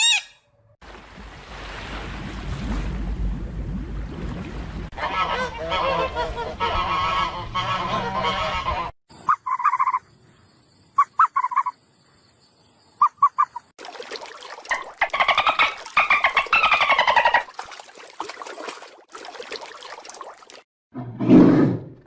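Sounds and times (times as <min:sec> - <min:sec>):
animal chirps: 0:09.2 - 0:10.0, 0:11.0 - 0:11.8
rapid chattering animal calls: 0:09.2 - 0:10.1, 0:11.0 - 0:11.8.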